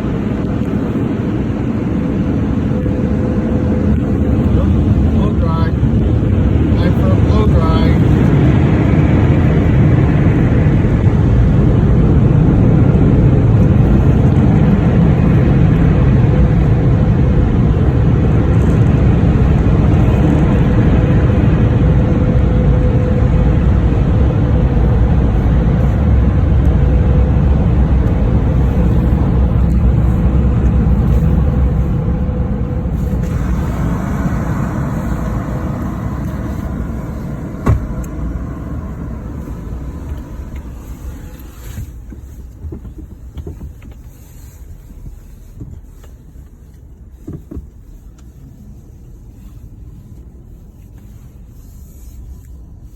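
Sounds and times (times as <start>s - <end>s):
car wash rushing rumble: 0.0s - 52.9s.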